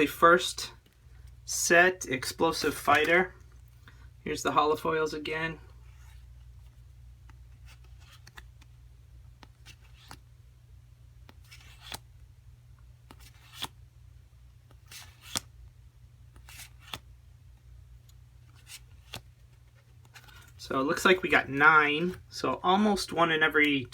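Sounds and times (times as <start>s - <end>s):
faint low hum: 0.0s - 23.9s
cards clicking and sliding: 2.6s - 3.2s, 5.9s - 10.3s, 11.2s - 12.1s, 13.0s - 13.8s, 14.6s - 15.5s, 16.3s - 17.1s, 18.0s - 23.9s.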